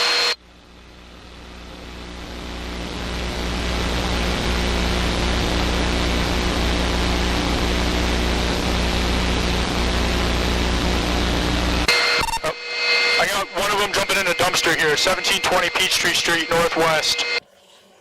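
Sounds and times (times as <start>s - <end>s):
helicopter engine and rotor drone: 11.9s - 17.4s.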